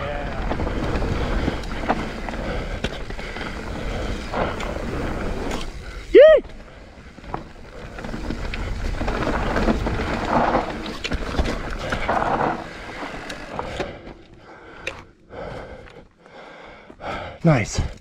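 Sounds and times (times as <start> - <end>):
tyres on dirt trail: 0.0 - 18.0.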